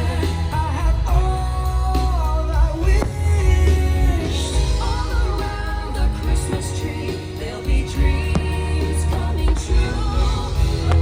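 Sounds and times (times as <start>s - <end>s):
music over loudspeakers: 0.0s - 11.0s
fireworks booming: 2.8s - 11.0s.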